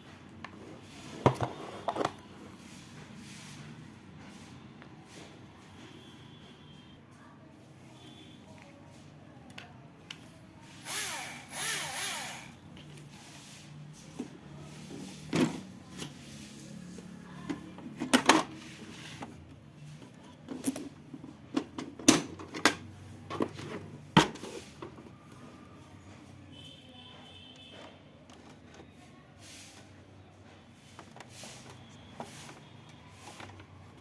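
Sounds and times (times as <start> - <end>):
electric drill running: 10.8 - 12.6.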